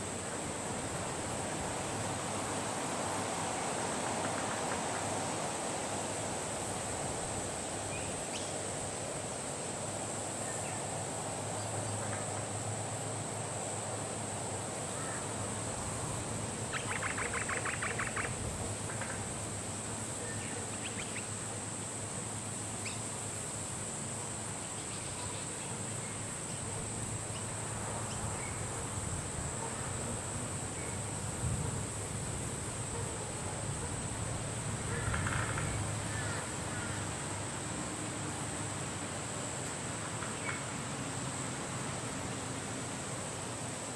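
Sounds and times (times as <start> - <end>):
high-pitched hiss: 0.0 - 43.9
rapid chattering bird call: 16.7 - 18.3.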